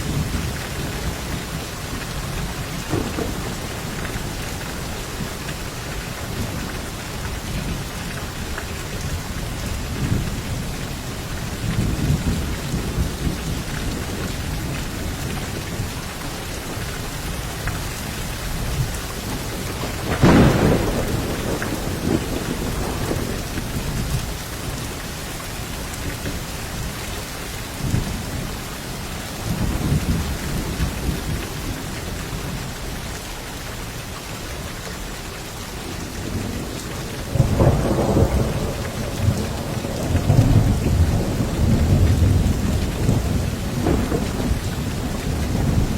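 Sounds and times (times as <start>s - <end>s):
steady rain: 0.0s - 45.9s
low thunder rolls: 2.7s - 4.4s, 19.5s - 24.3s, 36.2s - 45.9s
sharp thunderclap: 2.9s - 3.9s, 19.5s - 24.2s, 37.3s - 45.9s.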